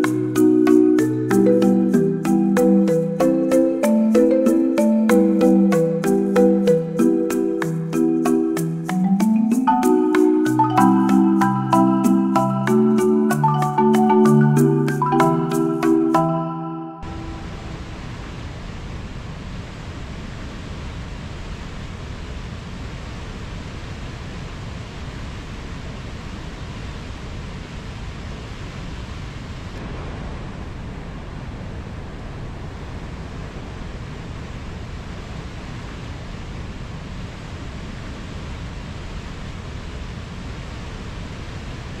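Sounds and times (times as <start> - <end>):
waterfall roaring: 17.1 - 18.8.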